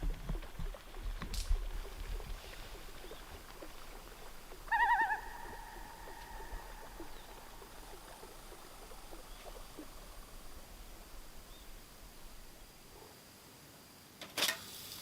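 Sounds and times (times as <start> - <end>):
loon wailing call: 4.7 - 7.8.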